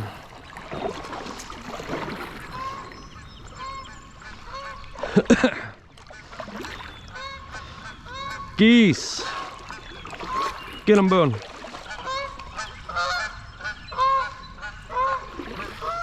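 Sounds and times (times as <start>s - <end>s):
geese honking: 2.5s - 5.0s, 7.1s - 16.0s.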